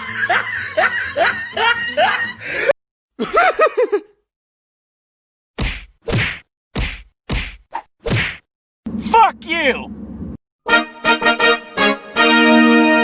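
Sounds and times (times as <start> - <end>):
music: 0.0 - 2.7, 10.6 - 13.0.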